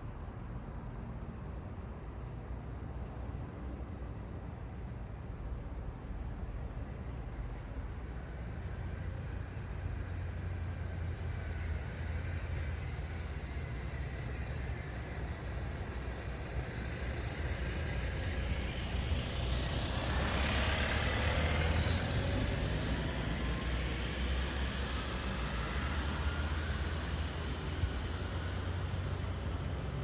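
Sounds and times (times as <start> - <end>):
low traffic rumble: 8.7 - 30.0.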